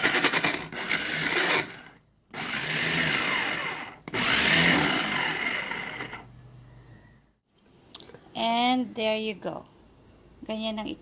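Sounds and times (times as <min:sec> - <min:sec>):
food processor motor pulsing: 0:00.0 - 0:06.3.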